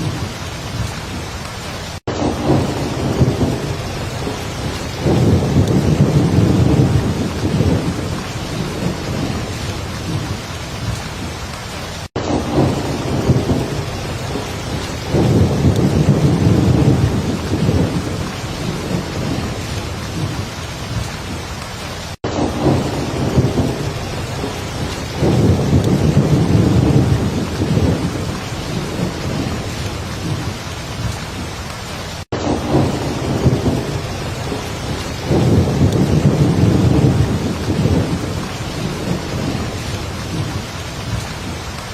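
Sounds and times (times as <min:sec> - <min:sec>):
heavy rain falling: 0:00.0 - 0:41.9
thunder rumbling: 0:00.0 - 0:41.9.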